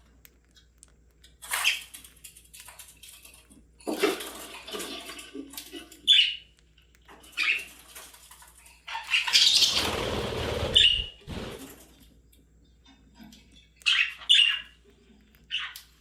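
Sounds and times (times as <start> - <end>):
wings flapping or rustling: 9.6 - 12.0.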